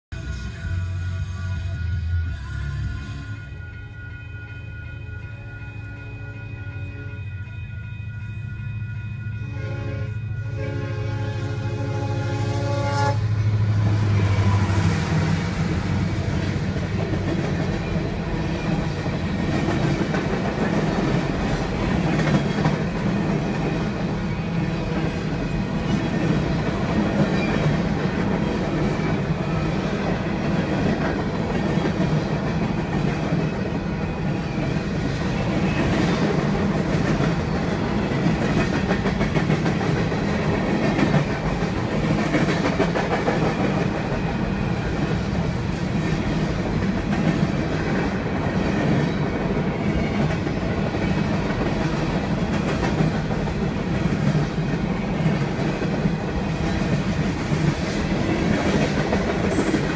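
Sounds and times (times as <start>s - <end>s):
train wheels rumbling on rail: 9.5s - 59.9s.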